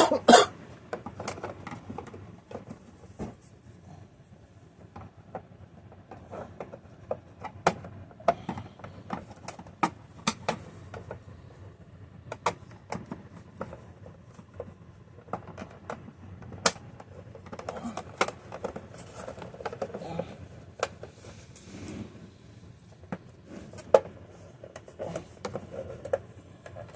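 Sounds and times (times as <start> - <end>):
plastic parts clicking and snapping: 0.9 - 2.8, 14.4 - 20.0.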